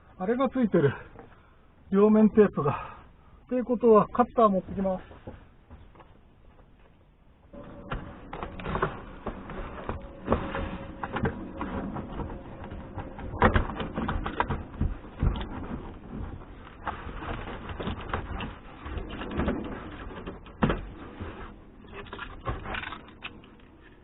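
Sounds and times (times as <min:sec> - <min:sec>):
hands working on car trim: 0:07.6 - 0:24.0.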